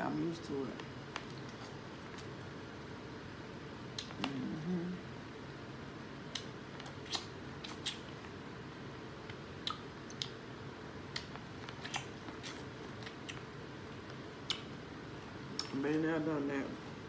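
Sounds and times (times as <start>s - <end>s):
steady low background noise: 0.0s - 17.0s
chewing corn on the cob: 6.3s - 8.4s, 11.1s - 14.7s.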